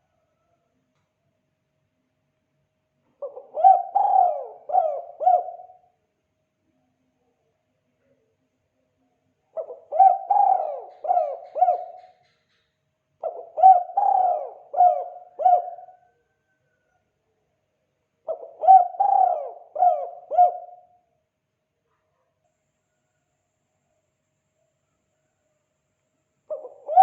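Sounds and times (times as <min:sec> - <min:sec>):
dove cooing: 0:03.2 - 0:05.9, 0:09.6 - 0:12.4, 0:13.2 - 0:16.6, 0:18.2 - 0:21.0, 0:26.5 - 0:27.0.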